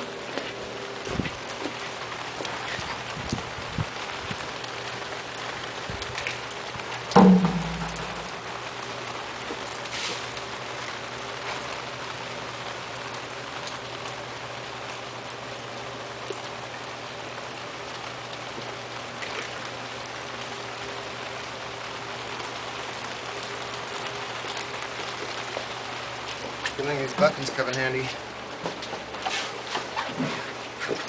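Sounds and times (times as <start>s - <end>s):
low steady hum: 0.0s - 9.8s.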